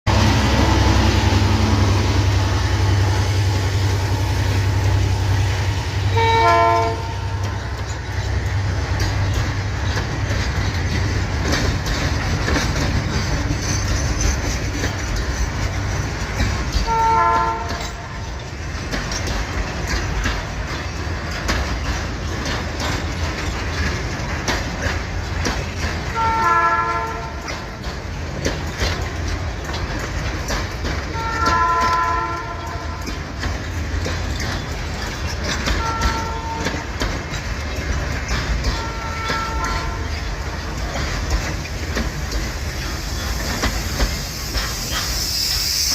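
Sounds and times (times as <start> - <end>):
freight train rumbling past: 0.0 - 45.9
wheels clattering over rail joints: 0.1 - 45.9
train horn blasts: 6.0 - 7.7, 16.8 - 18.2, 26.1 - 27.5, 31.1 - 33.1, 35.7 - 36.9, 38.6 - 40.2.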